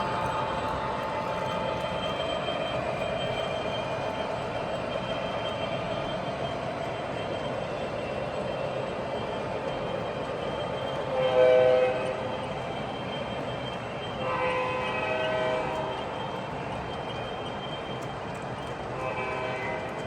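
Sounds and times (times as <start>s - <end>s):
train rumbling on track: 0.0s - 20.0s
model train horn: 11.0s - 12.3s, 14.1s - 16.1s, 18.9s - 20.0s.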